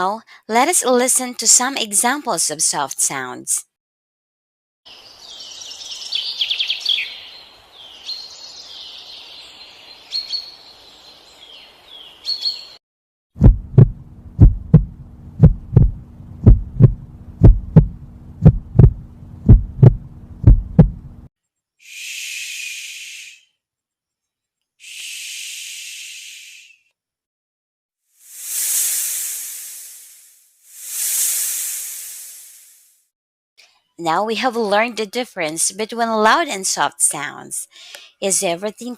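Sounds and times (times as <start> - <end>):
birds chirping: 4.9 - 12.8
heartbeat thumps: 13.4 - 21.3
soft hissing breaths: 21.8 - 23.6, 24.8 - 26.9, 28.2 - 33.0.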